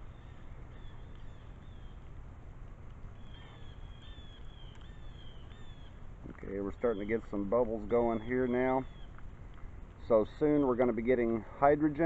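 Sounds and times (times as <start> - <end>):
bird chirping: 0.0 - 2.2, 3.1 - 9.3
low outdoor rumble: 0.0 - 12.0.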